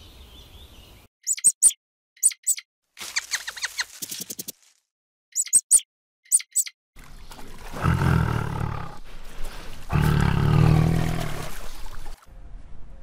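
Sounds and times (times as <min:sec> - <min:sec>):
high-pitched squeaks: 0:01.3 - 0:04.5, 0:05.4 - 0:06.7
tiger growling: 0:07.7 - 0:09.1, 0:09.8 - 0:11.6.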